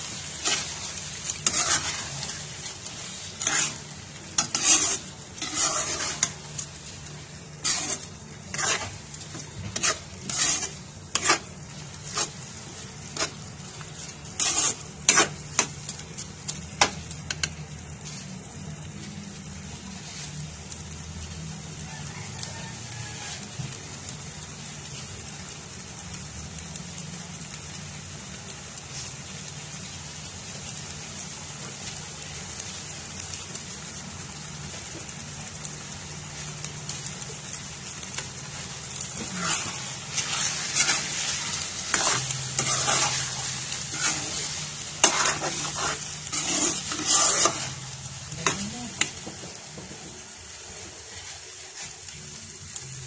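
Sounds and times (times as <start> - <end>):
metal spoon scraping a pan: 0.0 - 18.2, 37.9 - 49.4
food sizzling in a wok: 0.0 - 53.0.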